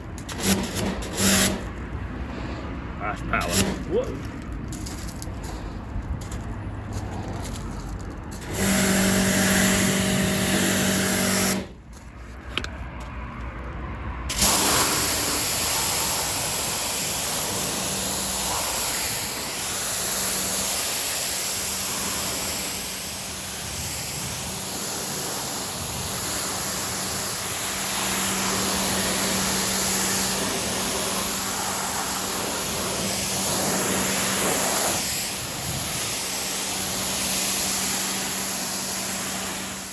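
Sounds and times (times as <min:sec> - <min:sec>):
pressure washer motor humming: 0:08.3 - 0:11.8, 0:14.3 - 0:39.9
water jet hissing: 0:08.4 - 0:11.7, 0:14.3 - 0:39.9.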